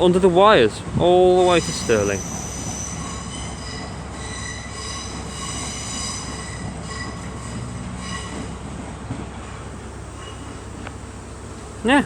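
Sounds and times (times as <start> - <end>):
train rumble: 0.0 - 12.0
high-pitched multi-tone squeal: 1.4 - 8.6.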